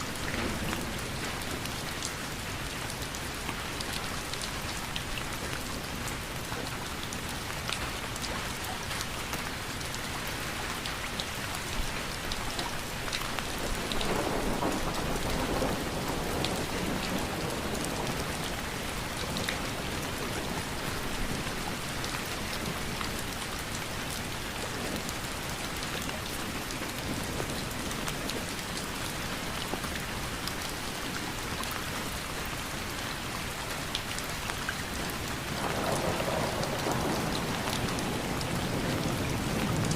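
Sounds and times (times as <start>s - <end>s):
sharp raindrop hits: 0.0s - 2.0s
steady rain falling: 0.0s - 39.9s.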